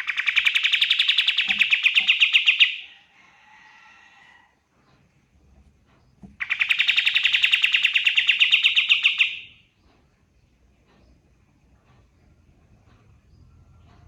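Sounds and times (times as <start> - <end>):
songbird trilling: 0.0 - 2.9, 6.4 - 9.6.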